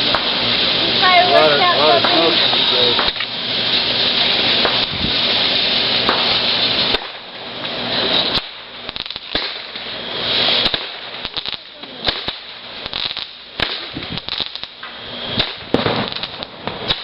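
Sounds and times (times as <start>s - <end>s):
fireworks crackling and popping: 0.0s - 17.0s
hiss: 0.0s - 17.0s
sharp loud fireworks cracks: 0.0s - 17.0s.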